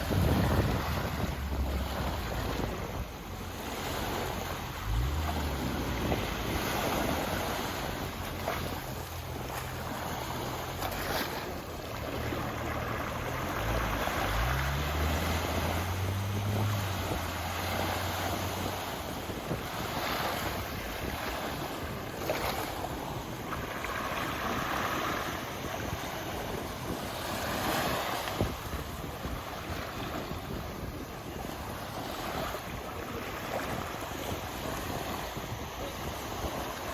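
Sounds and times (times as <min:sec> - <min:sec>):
sea waves washing ashore: 0:00.0 - 0:36.9
wind buffeting microphone: 0:00.0 - 0:36.9.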